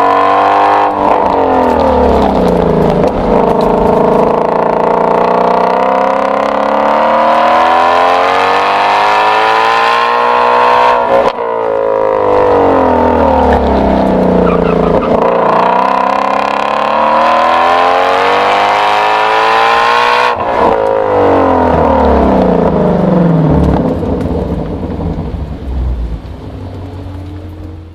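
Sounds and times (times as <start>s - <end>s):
car exhaust accelerating: 0.0s - 27.9s.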